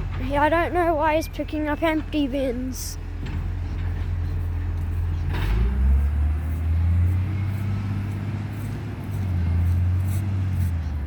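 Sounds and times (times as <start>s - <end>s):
diesel truck engine droning: 0.0s - 11.0s.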